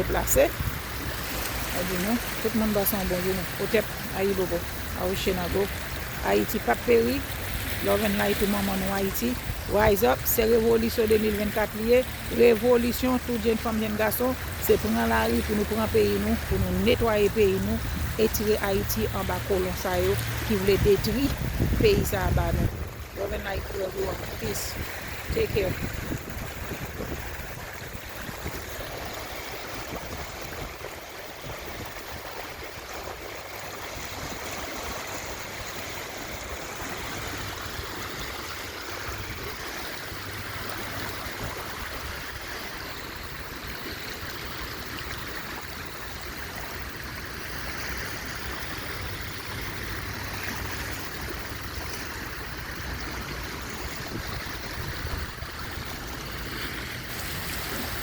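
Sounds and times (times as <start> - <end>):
stream water flowing: 0.0 - 58.0.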